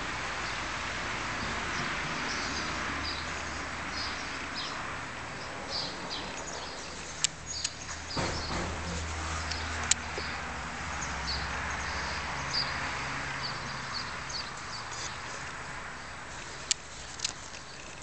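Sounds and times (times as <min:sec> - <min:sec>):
outdoor background noise: 0:00.0 - 0:18.0
small birds chirping: 0:00.3 - 0:18.0
sharp clicks: 0:07.2 - 0:10.3, 0:16.4 - 0:18.0.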